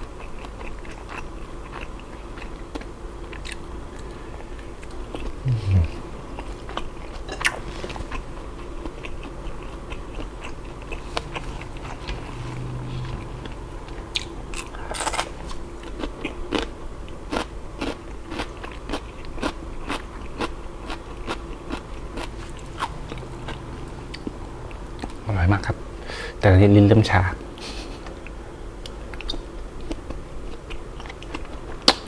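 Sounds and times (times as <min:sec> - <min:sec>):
wet chewing clicks and smacks: 0:28.2 - 0:32.0.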